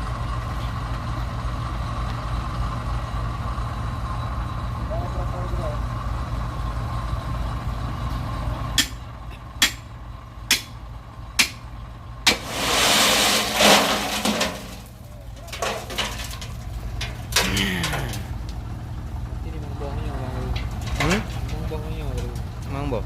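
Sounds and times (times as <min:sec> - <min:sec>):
excavator diesel engine running: 0:00.0 - 0:23.0
sharp knocks: 0:09.6 - 0:09.8, 0:10.5 - 0:10.8, 0:11.4 - 0:11.6
loud rushing noise: 0:12.3 - 0:14.9.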